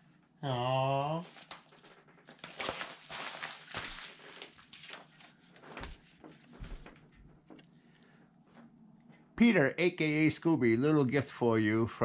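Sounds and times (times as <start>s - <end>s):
packaging rustling and crinkling: 1.2s - 7.0s.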